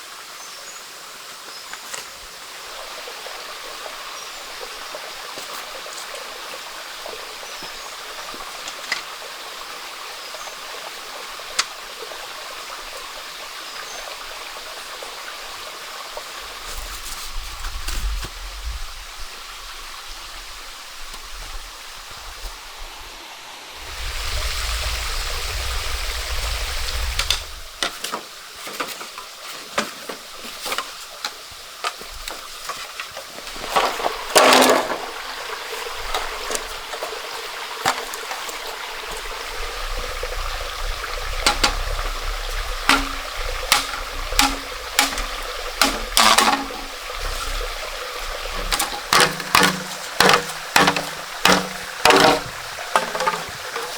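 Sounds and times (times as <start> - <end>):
stream water running: 0.0 - 53.9
knocks and clicks: 41.4 - 47.5, 48.4 - 53.9.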